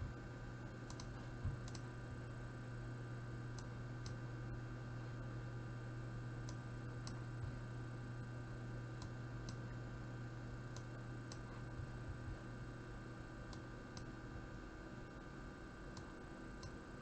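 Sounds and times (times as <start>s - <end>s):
low electrical hum: 0.0s - 17.0s
computer mouse clicking: 0.9s - 1.9s, 10.7s - 11.9s, 13.5s - 14.1s.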